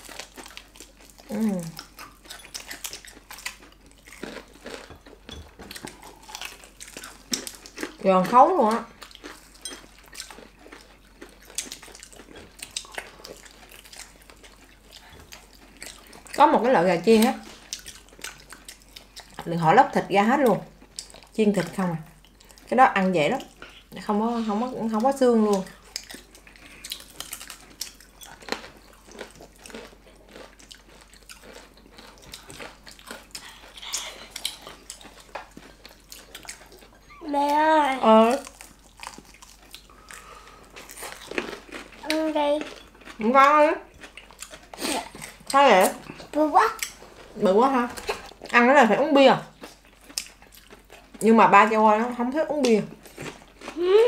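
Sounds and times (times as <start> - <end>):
chewing crispy chicken crunches: 0.0 - 8.0, 8.8 - 16.4, 25.6 - 37.0, 38.3 - 43.3, 43.9 - 47.3, 49.5 - 51.3, 53.0 - 54.0.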